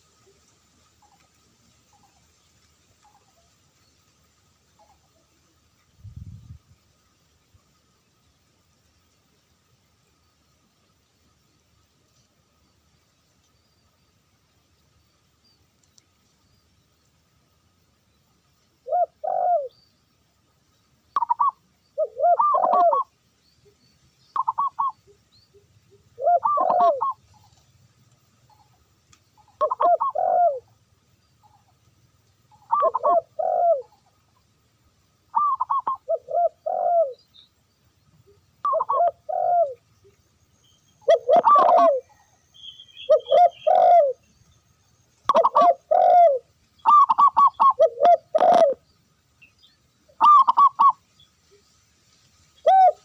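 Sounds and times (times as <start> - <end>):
dove cooing: 18.8 - 19.8, 21.2 - 23.1, 24.4 - 25.0, 25.9 - 27.6, 29.5 - 30.7, 32.5 - 34.1, 35.3 - 37.2, 38.6 - 39.8, 41.0 - 42.3, 43.0 - 44.2, 45.3 - 48.8, 50.2 - 51.0, 52.6 - 53.0
faint high bird chirps: 20.7 - 27.7, 28.4 - 31.8, 32.4 - 34.6, 35.2 - 51.8.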